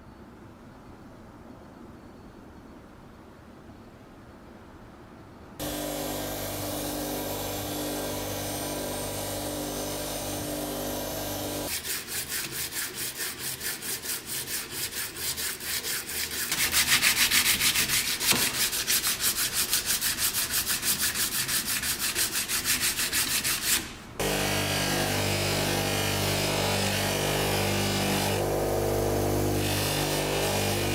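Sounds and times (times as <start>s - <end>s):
small power tool motor: 5.6s - 11.7s, 24.2s - 30.9s.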